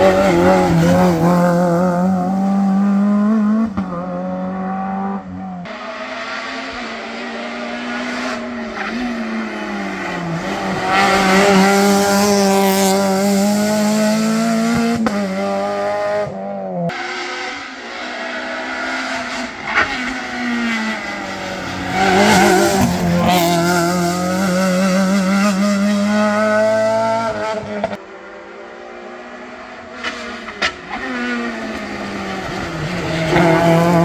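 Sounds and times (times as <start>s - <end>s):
rally car engine at high revs: 0.0s - 34.0s
tyre squeal: 21.3s - 23.6s.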